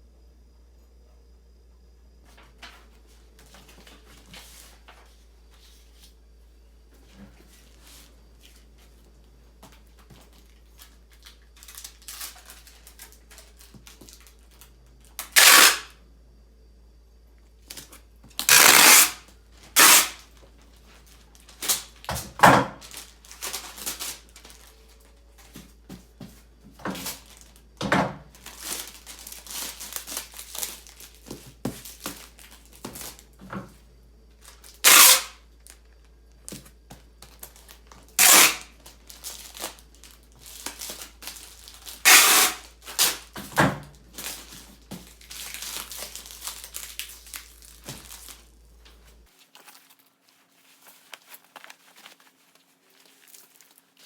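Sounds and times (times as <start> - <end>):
loud ripping sounds: 15.3 - 15.9, 18.4 - 19.2, 19.8 - 20.2, 34.8 - 35.4, 38.2 - 39.8, 40.4 - 43.4
material rustling and crinkling: 44.0 - 54.0.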